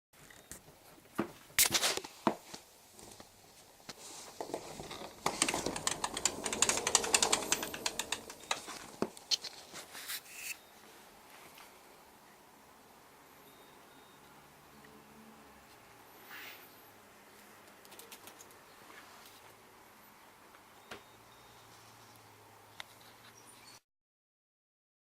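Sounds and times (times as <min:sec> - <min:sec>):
mesh flap rustling and rattling: 0:04.4 - 0:09.0
sharp clicks: 0:05.2 - 0:09.5.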